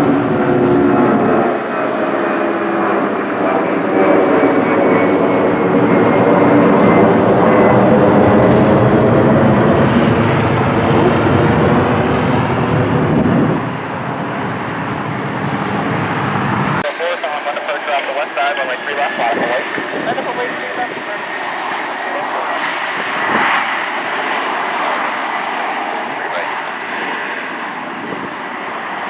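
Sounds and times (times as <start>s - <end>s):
jet engine whine: 0.0s - 29.0s
jet engines roaring: 0.0s - 29.0s.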